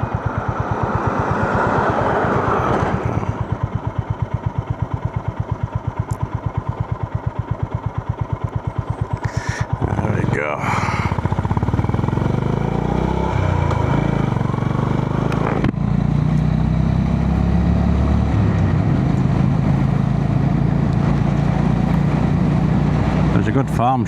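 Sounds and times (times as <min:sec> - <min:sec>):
motorcycle engine running: 0:00.0 - 0:24.0
road and wind noise: 0:00.0 - 0:24.0.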